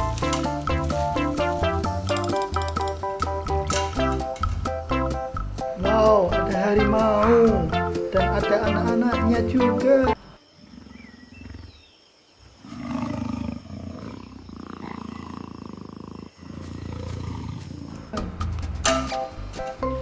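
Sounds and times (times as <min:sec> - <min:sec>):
tiger roaring: 0:12.5 - 0:18.8.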